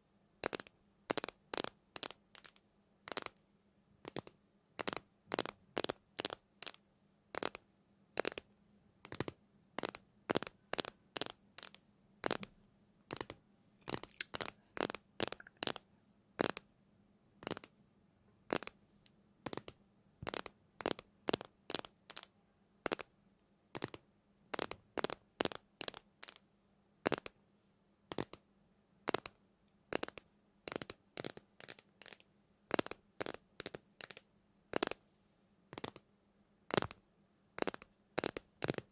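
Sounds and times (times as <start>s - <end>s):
faint steady hum: 6.4s - 24.5s.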